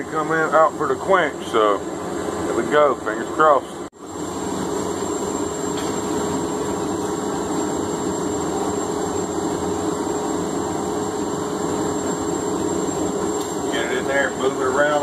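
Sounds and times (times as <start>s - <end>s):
thin high whine: 4.0s - 15.0s.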